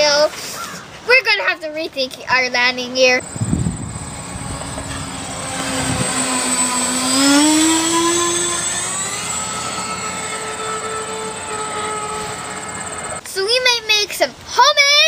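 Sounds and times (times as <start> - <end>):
model airplane motor running: 3.2 - 13.2.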